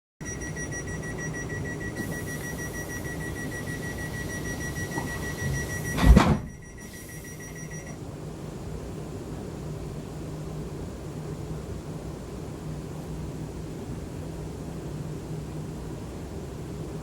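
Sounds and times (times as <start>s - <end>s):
rapid high electronic beeps: 0.2s - 8.0s
electric train hum: 0.3s - 8.4s
loud thump: 5.9s - 6.6s.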